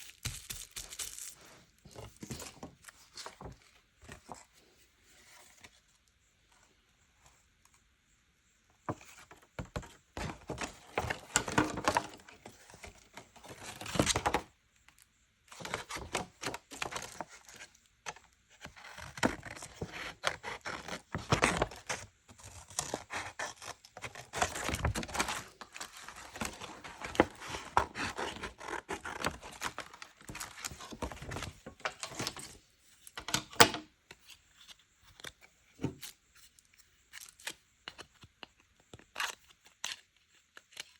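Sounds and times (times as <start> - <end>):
paper rustling and tearing: 0.0 - 2.7.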